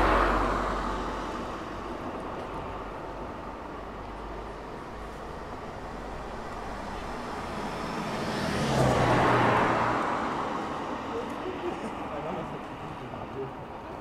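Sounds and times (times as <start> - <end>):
car driving past: 7.4 - 10.6.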